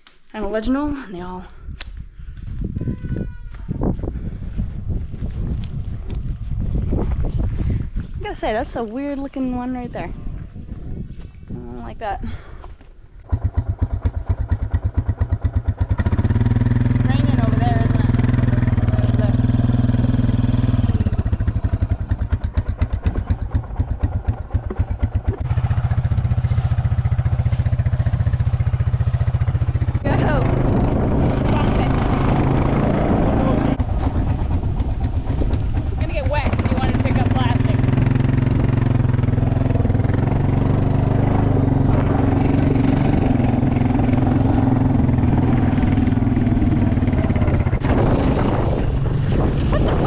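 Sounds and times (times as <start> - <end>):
wind noise: 0.5 - 50.0
vehicle engine idling: 13.2 - 30.5
vehicle engine running: 13.2 - 50.0.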